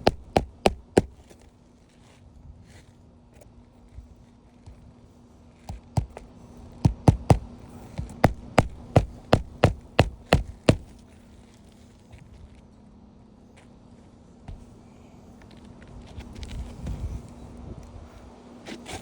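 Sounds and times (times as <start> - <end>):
hammer striking nails: 0.0 - 1.2, 6.8 - 11.0.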